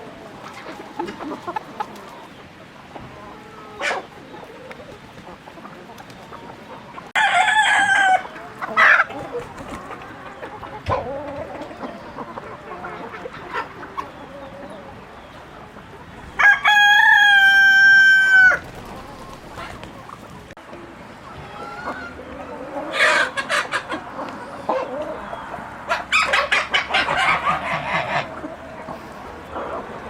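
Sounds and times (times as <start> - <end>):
hens clucking softly: 0.0 - 30.0
rooster crowing: 7.2 - 9.0, 16.4 - 18.6.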